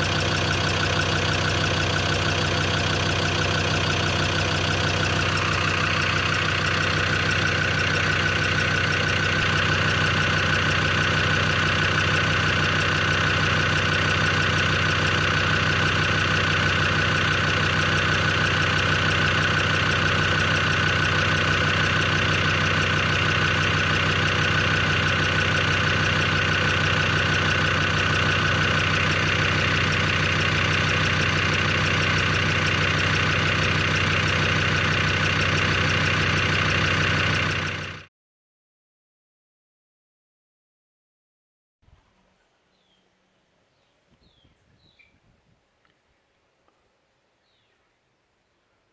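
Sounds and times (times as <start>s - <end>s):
diesel engine idling: 0.0s - 38.1s
engine ticking: 0.0s - 38.1s.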